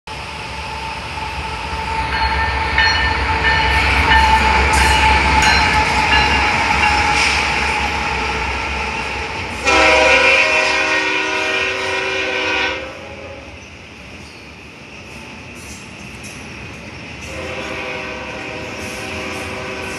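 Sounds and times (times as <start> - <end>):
diesel locomotive engine rumble: 0.1 - 19.9
rail noise: 0.1 - 19.9
train horn blast: 9.5 - 13.5, 17.2 - 19.9.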